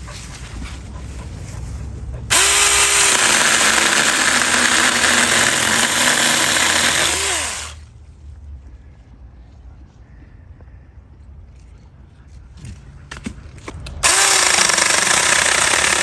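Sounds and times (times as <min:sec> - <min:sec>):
electric chainsaw cutting branch: 0:02.3 - 0:07.8, 0:14.0 - 0:16.0.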